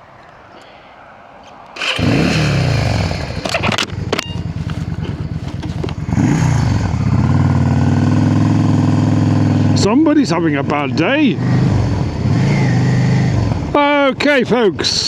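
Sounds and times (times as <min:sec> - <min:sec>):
motorcycle engine starting and idling: 0:01.7 - 0:15.0.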